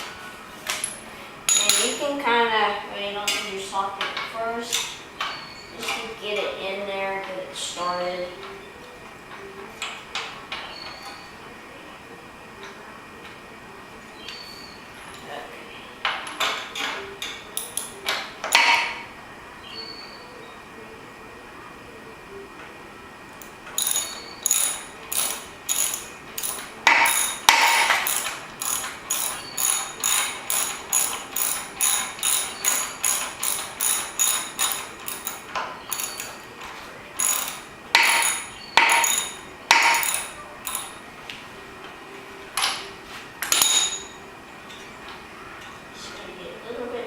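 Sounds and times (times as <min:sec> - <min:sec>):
ratchet wrench ratcheting: 0:23.4 - 0:36.5, 0:37.2 - 0:41.0.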